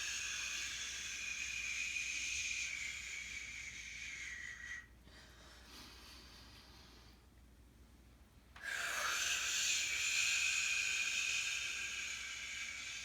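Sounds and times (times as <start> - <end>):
person exhaling slowly: 0.0 - 4.9, 8.6 - 13.0.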